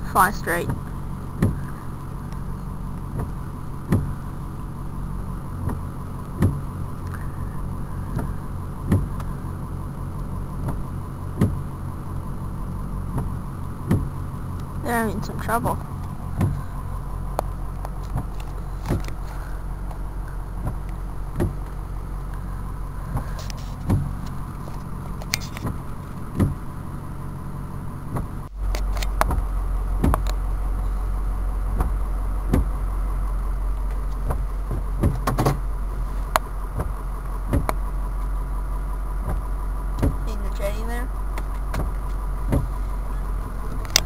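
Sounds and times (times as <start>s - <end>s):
car engine idling: 0.0s - 44.0s
sharp ticks and knocks: 2.3s - 4.2s, 10.2s - 11.6s, 13.1s - 14.8s, 15.7s - 20.0s, 20.6s - 22.4s, 23.1s - 26.6s, 28.1s - 30.4s, 31.6s - 32.8s, 33.7s - 35.6s, 36.3s - 38.3s, 39.2s - 40.3s, 41.3s - 42.8s.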